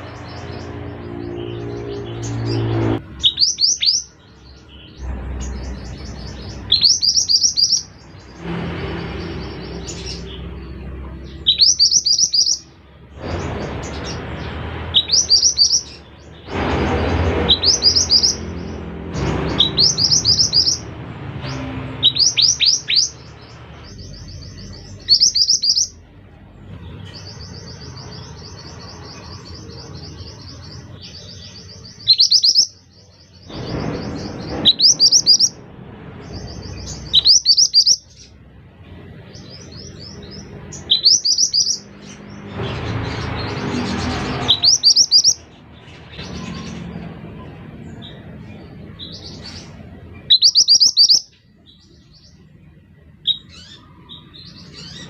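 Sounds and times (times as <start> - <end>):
bird whistling and trilling: 3.2 - 4.1, 6.7 - 7.9, 11.4 - 12.7, 15.0 - 15.9, 19.6 - 20.8, 22.0 - 23.2, 24.0 - 26.0, 31.2 - 32.8, 33.6 - 35.6, 36.7 - 38.2, 40.8 - 41.8, 44.5 - 45.4, 50.2 - 51.4, 53.2 - 53.8.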